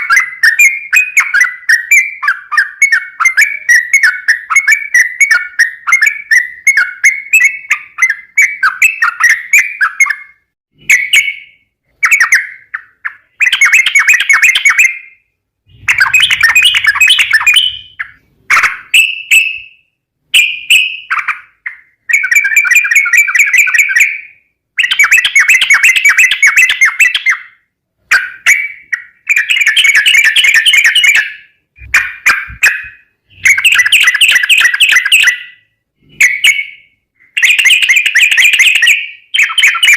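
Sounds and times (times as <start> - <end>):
bulbul bubbly chattering song: 15.7 - 18.0.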